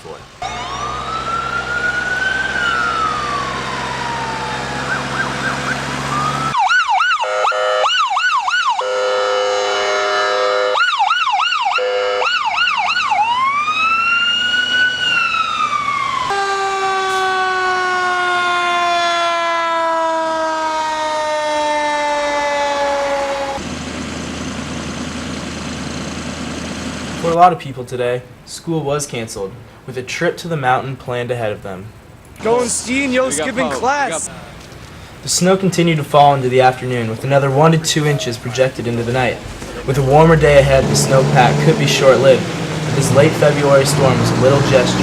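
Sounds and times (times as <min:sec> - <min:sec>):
low engine hum: 0:00.4 - 0:06.6, 0:23.4 - 0:27.3, 0:36.2 - 0:45.0
emergency vehicle siren: 0:00.4 - 0:26.2.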